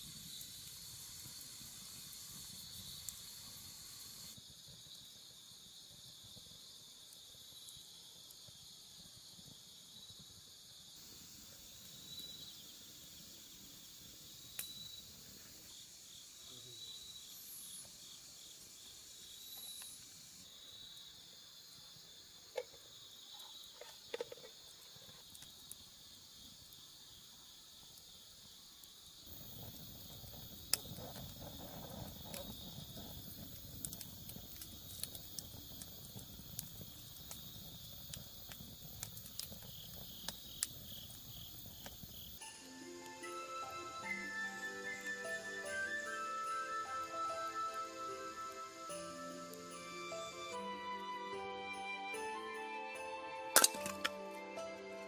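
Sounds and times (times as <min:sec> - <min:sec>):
insects chirping: 0:00.0 - 0:54.9
low rustling with crackles: 0:29.2 - 0:42.4.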